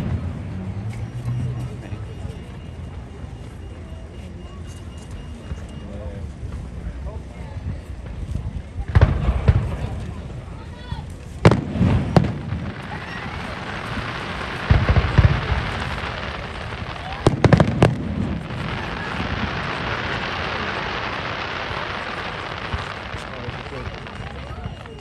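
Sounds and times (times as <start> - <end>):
fireworks bangs and booms: 0.0 - 0.6, 6.4 - 25.0
fireworks crackling: 0.0 - 3.6, 4.8 - 25.0.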